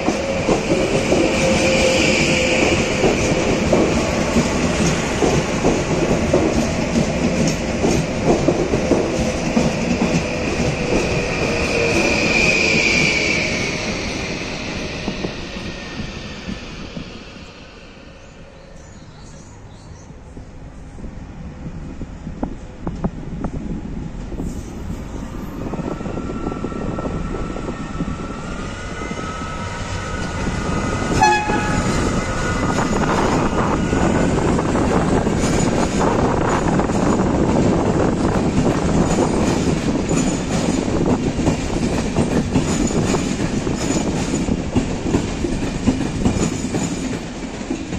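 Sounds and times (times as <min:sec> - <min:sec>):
diesel locomotive whine: 0:00.0 - 0:47.9
train rolling rumble: 0:00.0 - 0:47.9
locomotive horn blast: 0:31.1 - 0:32.0.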